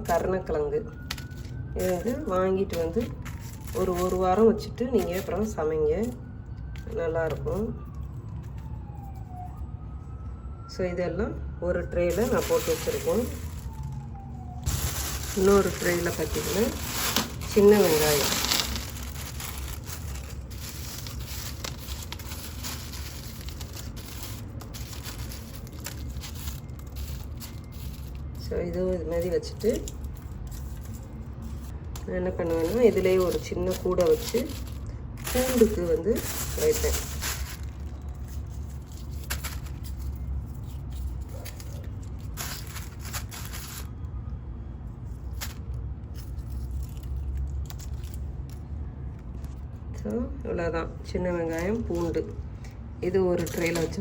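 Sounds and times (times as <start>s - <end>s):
faint handling rustle: 1.0s - 6.2s, 12.1s - 44.0s, 53.3s - 54.0s.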